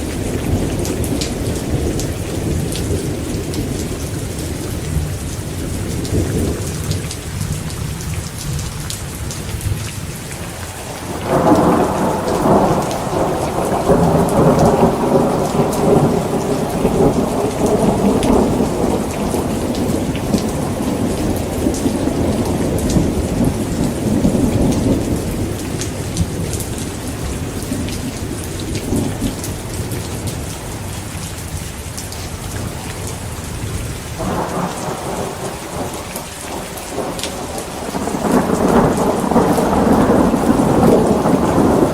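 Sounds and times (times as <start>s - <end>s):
heavy rain: 0.0s - 41.9s
thunder rumbling: 10.6s - 30.5s, 33.4s - 41.9s.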